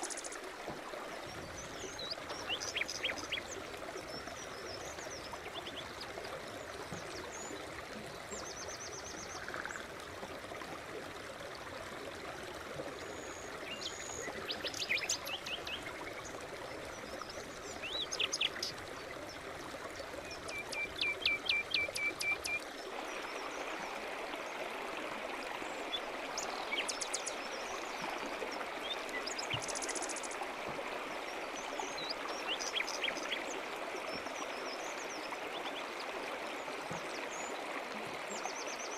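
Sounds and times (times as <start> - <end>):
brook running: 0.0 - 38.9
birds singing: 1.5 - 3.6, 17.7 - 18.8.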